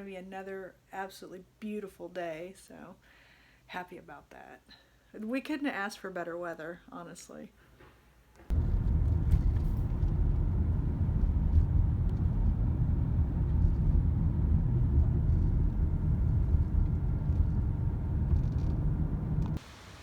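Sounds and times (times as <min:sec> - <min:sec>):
loud low rumble: 0:08.5 - 0:19.6.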